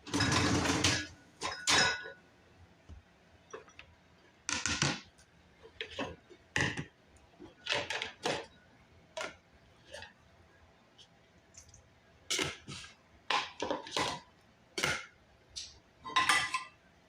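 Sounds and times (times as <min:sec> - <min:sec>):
dishes clinking: 0:00.1 - 0:02.2, 0:16.0 - 0:16.8.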